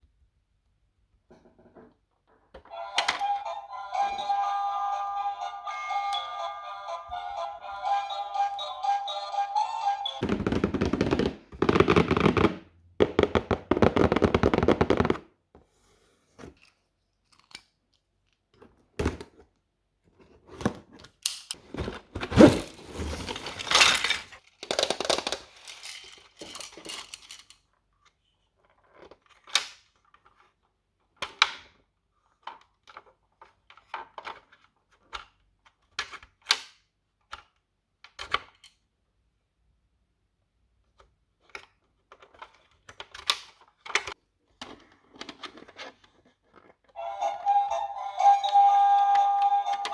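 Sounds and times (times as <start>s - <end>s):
packaging rustling and tearing: 21.7s - 24.4s
plastic pieces clicking and tapping: 24.5s - 27.7s.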